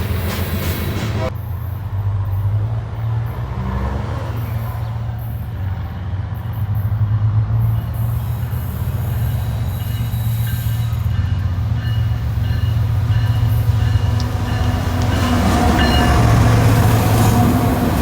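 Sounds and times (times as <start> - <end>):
locomotive engine rumbling: 0.0 - 18.0.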